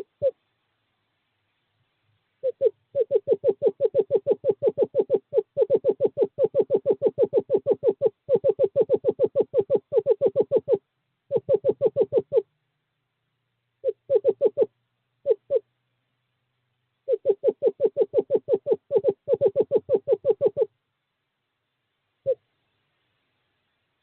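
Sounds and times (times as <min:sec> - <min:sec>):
screech owl trilling: 0:02.4 - 0:12.5, 0:13.8 - 0:15.6, 0:17.1 - 0:20.7.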